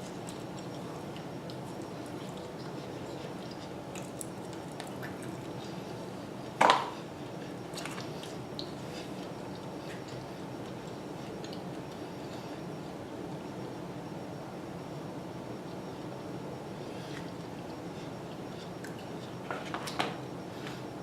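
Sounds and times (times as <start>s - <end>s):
wet chewing and mouth clicks: 0.0s - 5.8s, 7.6s - 12.4s, 17.1s - 19.4s
low background hum: 0.0s - 21.0s.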